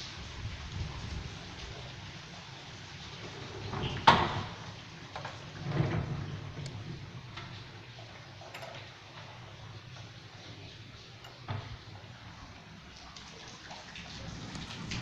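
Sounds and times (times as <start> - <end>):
rain and hail: 0.0 - 15.0.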